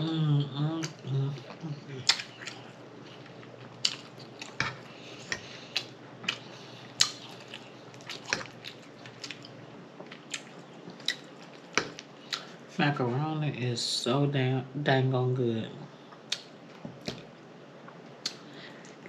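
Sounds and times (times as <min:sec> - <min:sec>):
wet chewing: 0:00.8 - 0:12.5
lip smacks and mouth clicks: 0:07.0 - 0:08.4.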